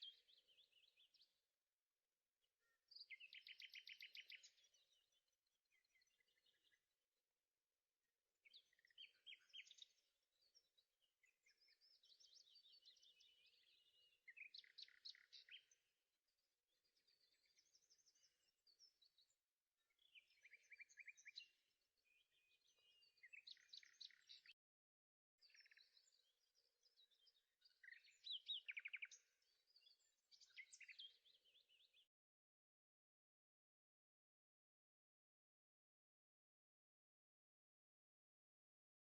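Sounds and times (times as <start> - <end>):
songbird chirping and trilling: 0.0 - 1.5, 2.6 - 7.1, 8.3 - 24.7, 25.3 - 32.3.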